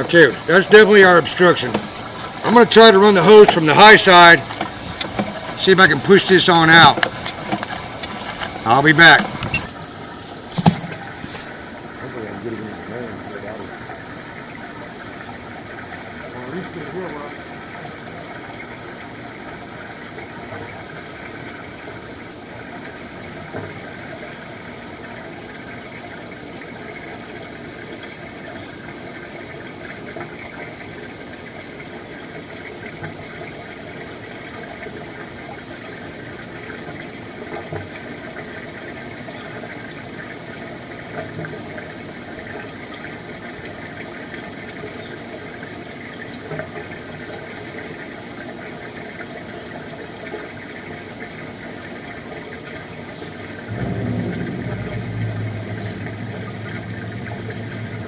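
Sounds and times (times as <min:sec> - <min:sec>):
engine running steadily: 0:53.7 - 0:58.0.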